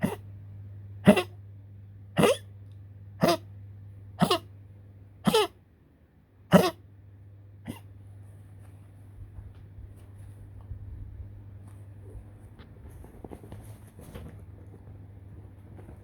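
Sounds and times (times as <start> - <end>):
dog coughing: 0.0 - 0.2, 1.0 - 1.4, 2.2 - 2.5, 3.2 - 3.5, 4.2 - 4.5, 5.2 - 5.6, 6.5 - 6.8, 7.6 - 7.9.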